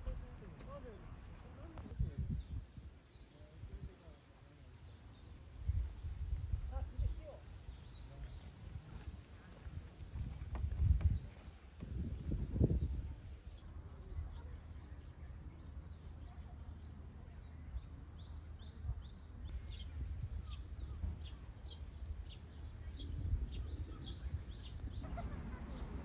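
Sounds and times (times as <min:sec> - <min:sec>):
low rumble of wind: 0:00.0 - 0:26.0
bird chirping: 0:11.0 - 0:26.0.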